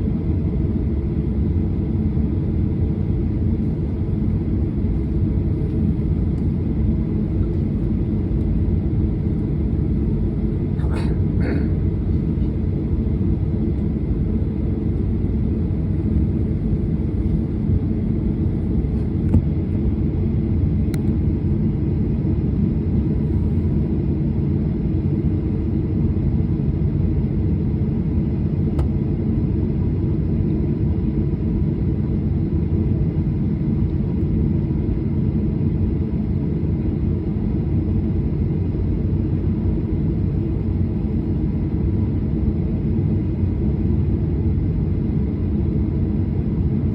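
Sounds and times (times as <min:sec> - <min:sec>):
jet cabin rumble: 0:00.0 - 0:46.9.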